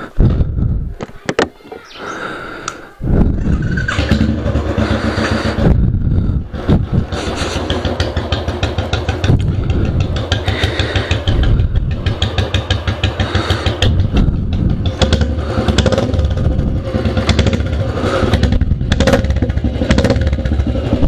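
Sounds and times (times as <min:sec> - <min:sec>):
motorcycle engine revving: 0:03.1 - 0:21.0
exhaust cracks and pops: 0:07.1 - 0:10.7.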